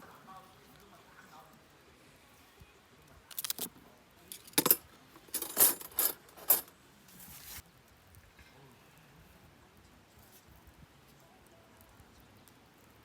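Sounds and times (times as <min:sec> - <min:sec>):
small hard objects clinking: 0:03.3 - 0:03.7, 0:04.3 - 0:06.7
rustle: 0:05.1 - 0:13.0.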